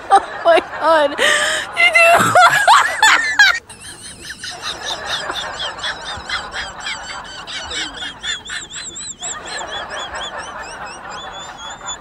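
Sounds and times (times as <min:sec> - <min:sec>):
rapid high-pitched chirping: 0:03.7 - 0:12.0.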